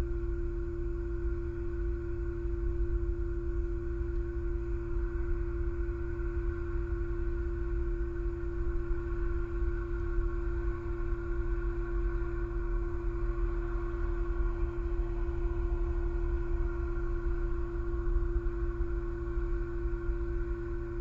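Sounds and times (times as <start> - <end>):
steady pitched hum: 0.0 - 21.0.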